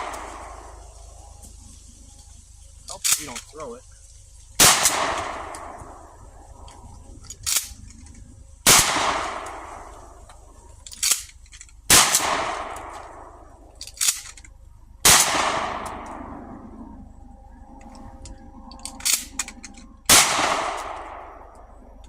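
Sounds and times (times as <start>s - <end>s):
shotgun shots echoing: 0.0s - 0.9s, 4.6s - 6.2s, 8.6s - 10.2s, 11.9s - 13.6s, 15.0s - 16.6s, 20.1s - 21.6s
shotgun pump action clack: 18.2s - 21.2s.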